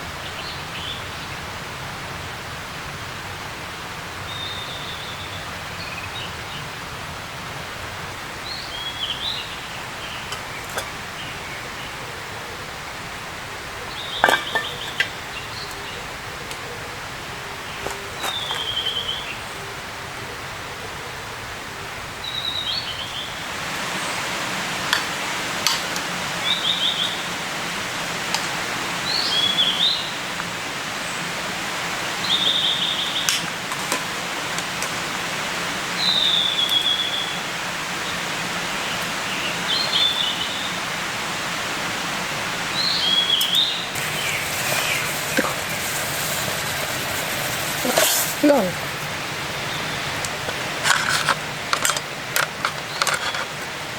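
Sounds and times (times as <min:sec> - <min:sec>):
songbird singing: 0:00.0 - 0:01.4, 0:04.2 - 0:06.8, 0:08.1 - 0:27.4, 0:29.0 - 0:31.4, 0:32.0 - 0:34.6, 0:35.8 - 0:41.0, 0:42.6 - 0:51.7
background hiss: 0:00.0 - 0:53.9.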